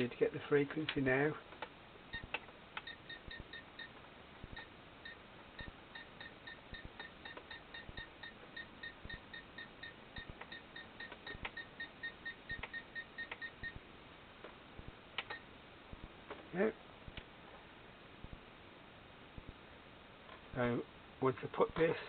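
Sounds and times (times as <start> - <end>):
short electronic beeps: 2.1 - 13.8.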